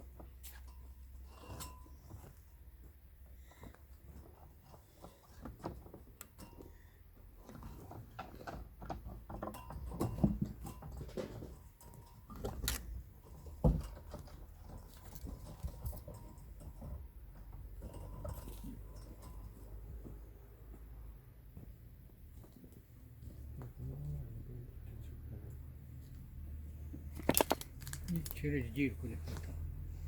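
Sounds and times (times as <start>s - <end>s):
hands handling fence materials: 26.9s - 29.7s.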